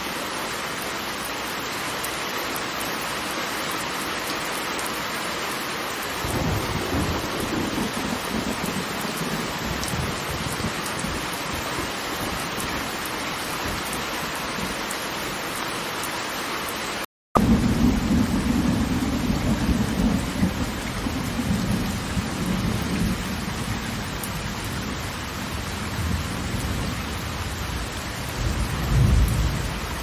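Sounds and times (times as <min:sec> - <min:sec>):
falling water rushing: 0:00.0 - 0:28.4
rolling thunder rumble: 0:06.2 - 0:12.4, 0:17.4 - 0:30.0.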